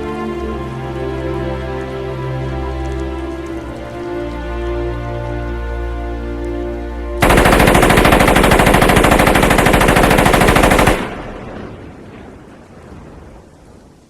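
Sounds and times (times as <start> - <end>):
music: 0.0 - 11.3
rain falling: 0.0 - 14.0
submachine gun firing: 7.2 - 11.7.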